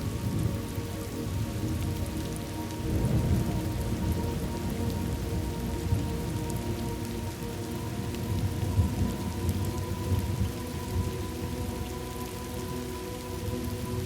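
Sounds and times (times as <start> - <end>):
thunder rumble: 0.0 - 11.2
steady rain falling: 0.0 - 14.0.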